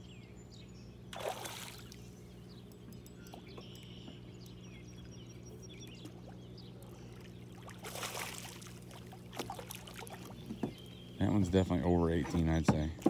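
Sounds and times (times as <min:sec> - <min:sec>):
steady low hum: 0:00.0 - 0:13.0
faint high chirps: 0:02.0 - 0:07.2.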